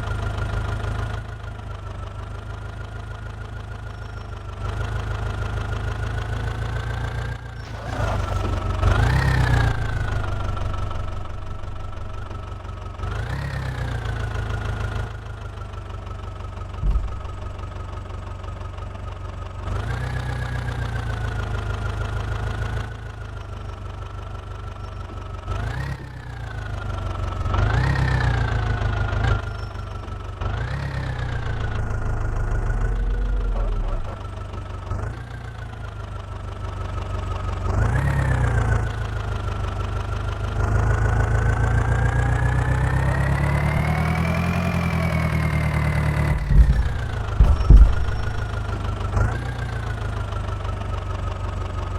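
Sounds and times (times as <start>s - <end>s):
diesel engine revving: 6.9s - 15.3s, 30.4s - 36.0s, 40.4s - 50.4s.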